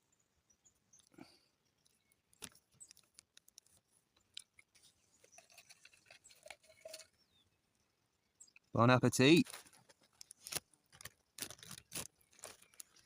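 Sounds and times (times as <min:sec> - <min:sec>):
faint clicks and taps: 0:01.8 - 0:05.3.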